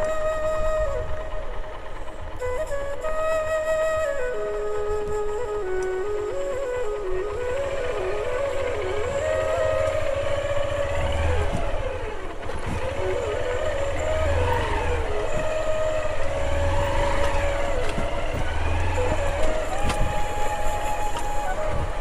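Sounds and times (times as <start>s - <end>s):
motorcycle engine revving: 6.8s - 22.0s.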